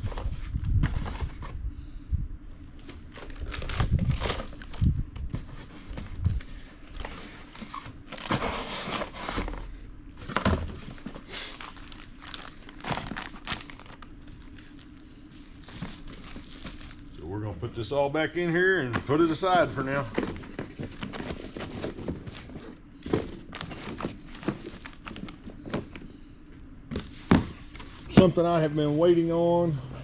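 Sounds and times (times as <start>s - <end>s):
plastic packaging crinkling: 2.7s - 5.0s, 10.2s - 17.2s, 20.3s - 25.9s.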